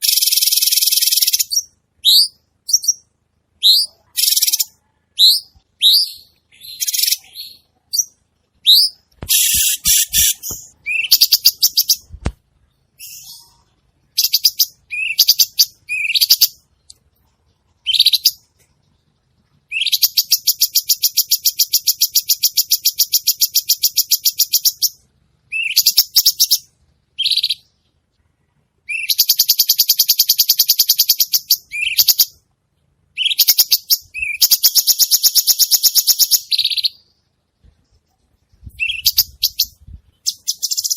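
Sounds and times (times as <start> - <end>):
songbird chirping and trilling: 0.0 - 40.9.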